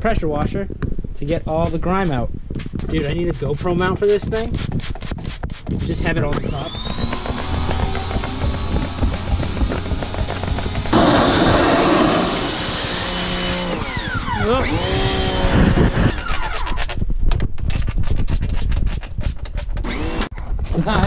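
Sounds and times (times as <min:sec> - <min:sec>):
electric pressure washer spraying: 0:06.5 - 0:16.1.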